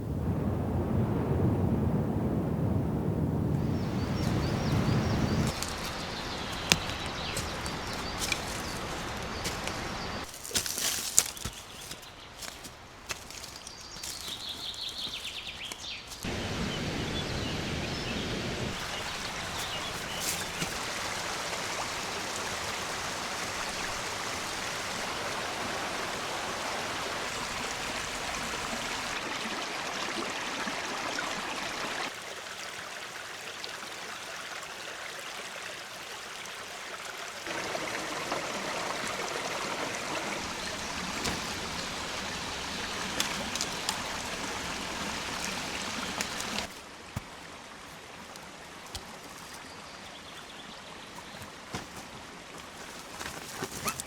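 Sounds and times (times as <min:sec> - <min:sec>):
rushing river water: 0:03.6 - 0:54.0.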